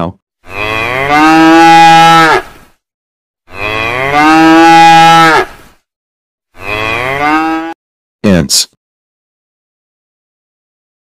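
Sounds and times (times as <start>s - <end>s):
cow mooing: 0.5s - 2.5s, 3.5s - 5.6s, 6.6s - 7.8s.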